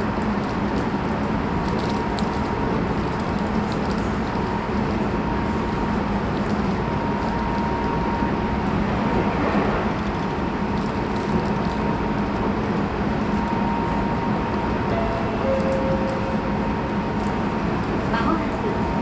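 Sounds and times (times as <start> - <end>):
wheels rumbling on rail: 0.0 - 19.0
low hum: 7.8 - 19.0
steady high tone: 13.6 - 19.0.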